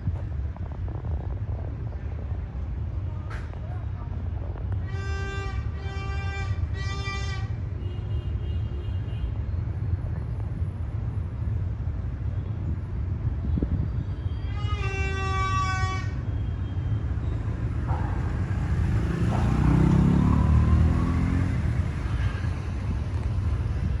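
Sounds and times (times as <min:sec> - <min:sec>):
locomotive horn blast: 0:04.8 - 0:09.2, 0:14.3 - 0:16.6.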